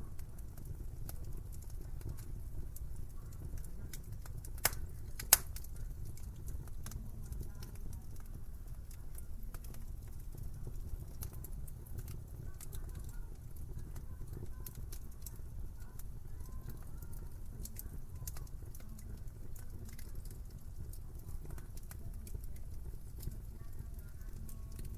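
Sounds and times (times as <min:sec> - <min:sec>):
wood fire crackling: 0:00.0 - 0:24.9
sharp fire pops: 0:00.2 - 0:15.4.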